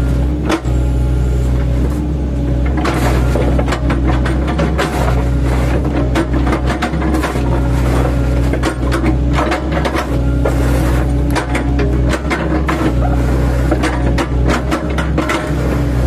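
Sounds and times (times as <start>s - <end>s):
excavator engine and hydraulics: 0.0s - 16.0s.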